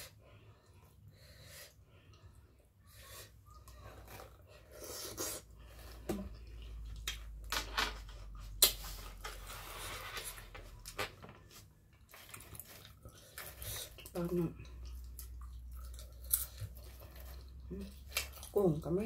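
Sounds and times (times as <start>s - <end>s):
person chewing squid: 11.8s - 18.6s.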